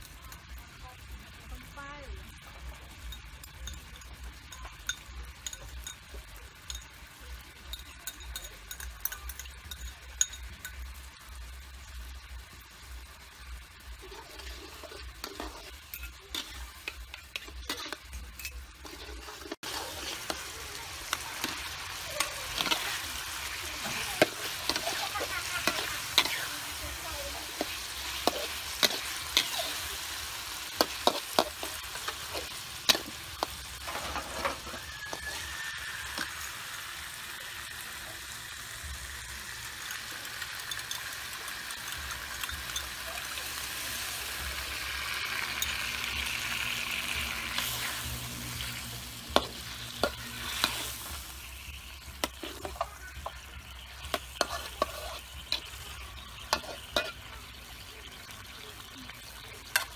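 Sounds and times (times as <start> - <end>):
fish sizzling in a wok: 0.0 - 59.9
metal spatula scraping a pan: 13.9 - 38.0, 39.8 - 59.9.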